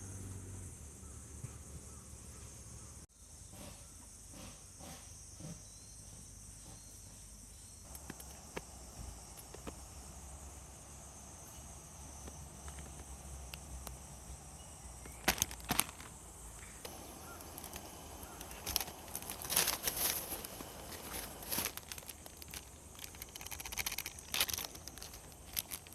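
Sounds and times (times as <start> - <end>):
insects chirping: 0.0 - 25.9
sharp crackles: 15.0 - 25.9.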